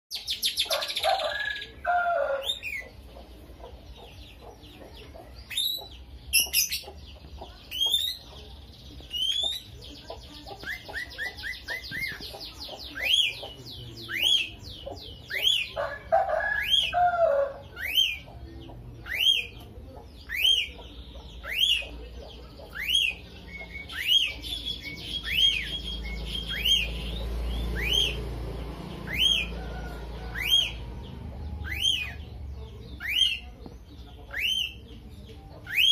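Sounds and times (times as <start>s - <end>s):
lovebird chirping: 2.4s - 16.0s.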